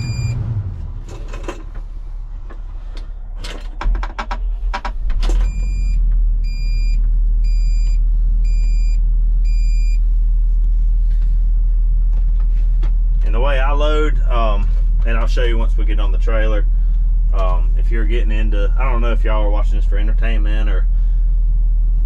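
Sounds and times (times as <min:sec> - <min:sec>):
electronic warning beeps: 0:00.0 - 0:00.5, 0:05.4 - 0:10.0
diesel engine starting and idling: 0:00.0 - 0:22.0.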